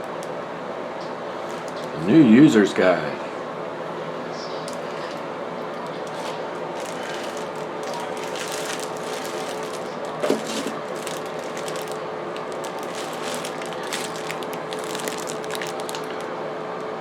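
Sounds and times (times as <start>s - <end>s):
exhaust fan humming: 0.0s - 17.0s
packaging rustling and crinkling: 1.4s - 2.1s, 5.8s - 16.3s.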